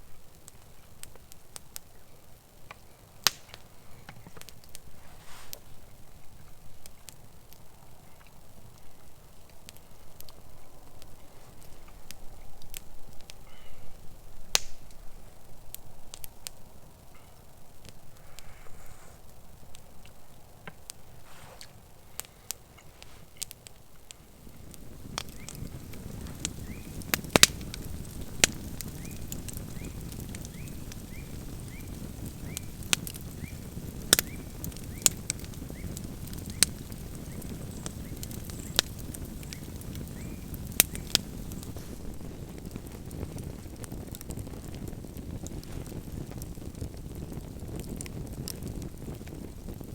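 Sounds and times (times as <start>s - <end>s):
campfire crackling and popping: 0.0s - 49.9s.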